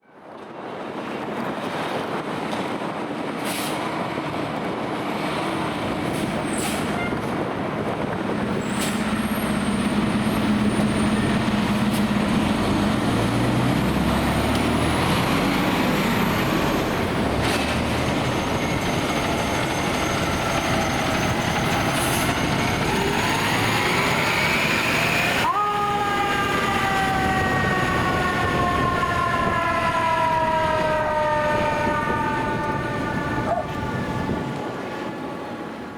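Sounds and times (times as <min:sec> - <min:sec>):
road noise: 0:00.0 - 0:35.9
heavy diesel engines: 0:00.2 - 0:35.9
siren: 0:09.1 - 0:35.9.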